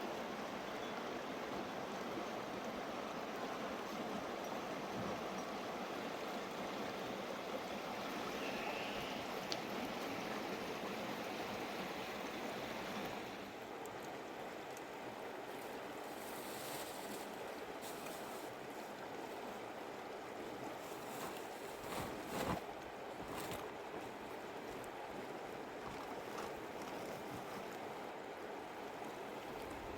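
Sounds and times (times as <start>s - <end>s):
mountain river running: 0.0s - 29.9s.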